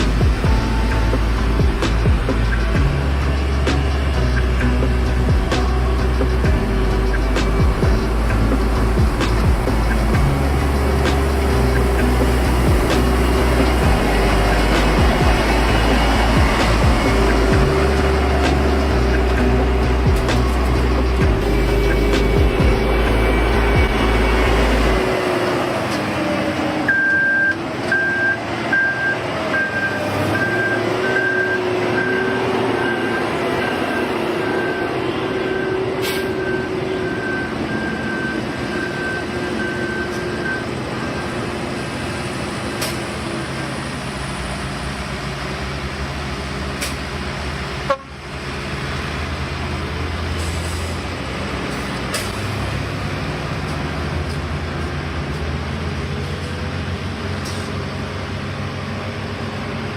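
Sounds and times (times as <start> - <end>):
reversing alarm beeping: 0.0 - 25.6, 26.8 - 43.8
heavy machine engine running: 0.0 - 59.9.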